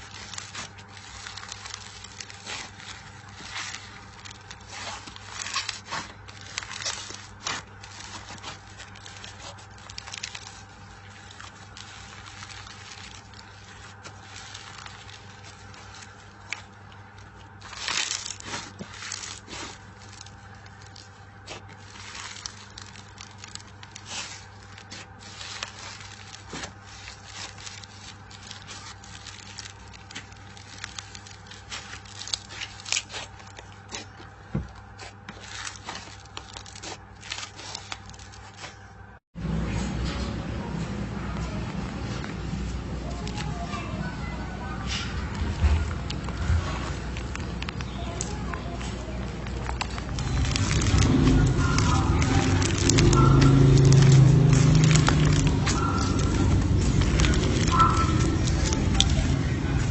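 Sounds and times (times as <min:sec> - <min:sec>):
slime crackling and popping: 0:00.0 - 0:38.9, 0:45.4 - 0:59.9
steady low hum: 0:00.0 - 0:59.9.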